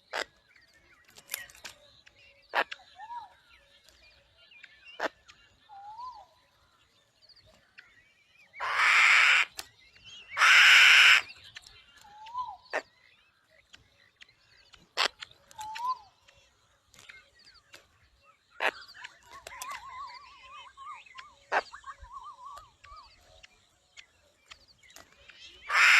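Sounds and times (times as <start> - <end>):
bird of prey screeches: 8.6 - 9.6, 10.4 - 11.3, 25.7 - 25.9.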